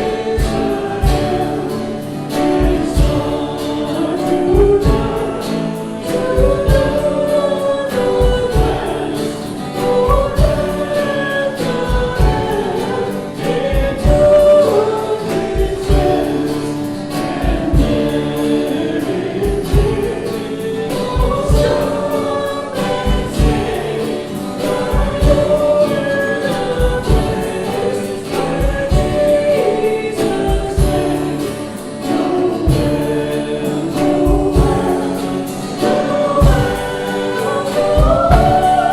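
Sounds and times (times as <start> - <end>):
instrumental accompaniment with beat: 0.0 - 38.9
voices singing worship song: 0.0 - 38.9.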